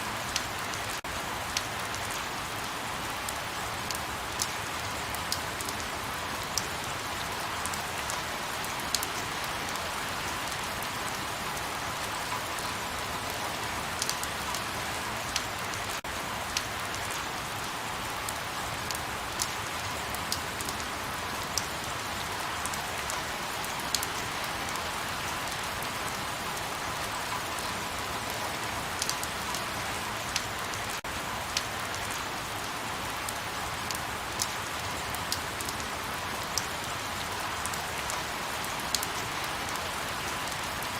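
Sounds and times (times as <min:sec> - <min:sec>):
light rain falling: 0:00.0 - 0:40.9
raindrops ticking: 0:29.0 - 0:29.6.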